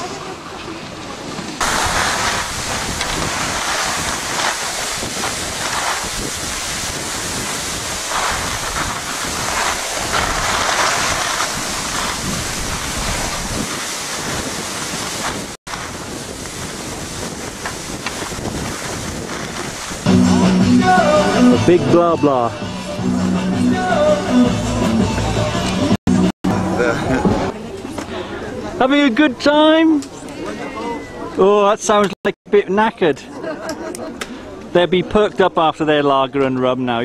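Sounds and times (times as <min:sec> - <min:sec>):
wind buffeting microphone: 0:01.6 - 0:20.1.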